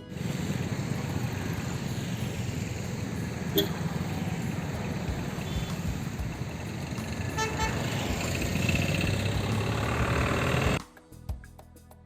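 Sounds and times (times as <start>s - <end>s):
road traffic: 0.0s - 10.8s
vehicle horn toot: 3.5s - 3.9s, 5.3s - 5.9s, 7.1s - 8.3s.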